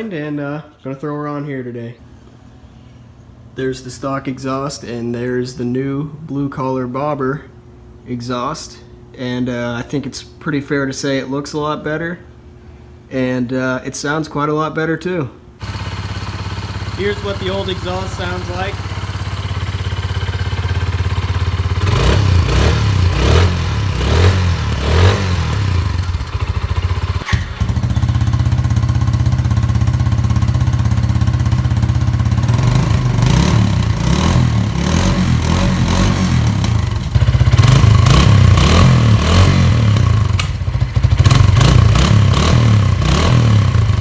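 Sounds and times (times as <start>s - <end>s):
motorcycle engine idling: 15.6s - 44.0s
motorcycle engine revving: 15.6s - 44.0s.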